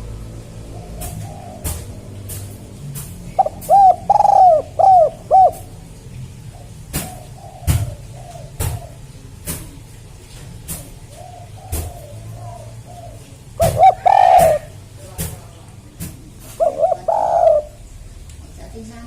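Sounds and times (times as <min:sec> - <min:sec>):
dove cooing: 0:00.0 - 0:14.9, 0:16.3 - 0:18.1.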